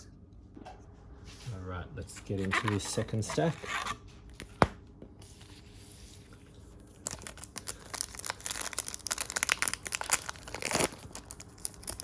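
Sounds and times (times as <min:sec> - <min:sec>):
plastic wrappers tearing and crinkling: 0:06.8 - 0:12.0.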